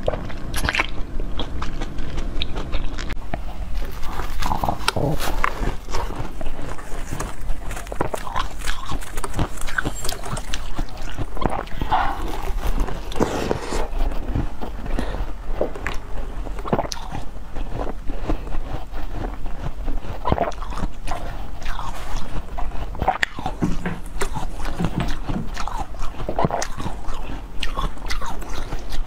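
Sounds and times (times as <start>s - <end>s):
wet mouth clicks: 0.0s - 3.5s
person biting crackly food: 0.0s - 29.0s.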